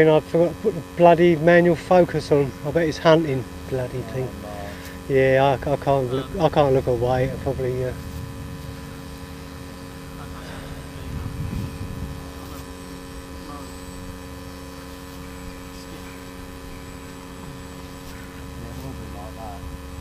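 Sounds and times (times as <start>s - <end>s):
steady electrical hum: 0.0s - 20.0s
wind rumble on microphone: 6.8s - 10.2s, 10.9s - 13.4s.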